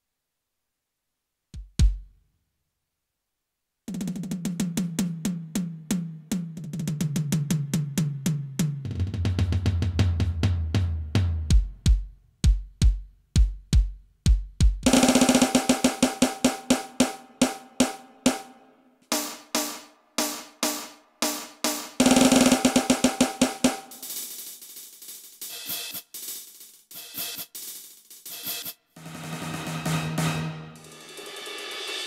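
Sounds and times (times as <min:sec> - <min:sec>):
electronic tom drum strokes: 0:14.6 - 0:32.0
electronic snare roll: 0:14.9 - 0:32.0.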